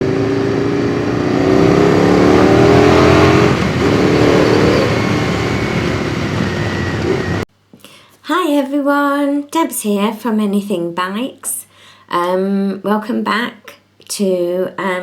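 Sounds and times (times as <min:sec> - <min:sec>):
rushing noise: 0:00.0 - 0:07.4
vehicle engine revving: 0:00.0 - 0:07.5.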